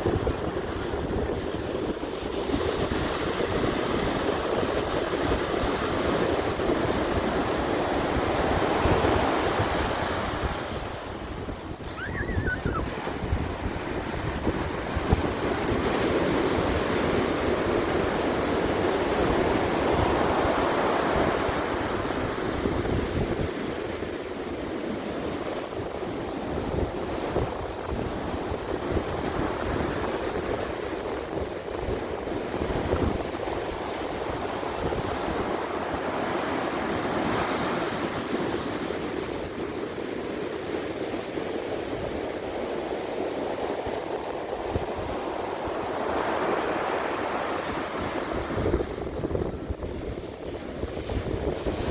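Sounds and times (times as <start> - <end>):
wind rumbling on microphone: 0.0 - 24.1, 43.2 - 51.9
ocean surf washing in: 7.3 - 22.4.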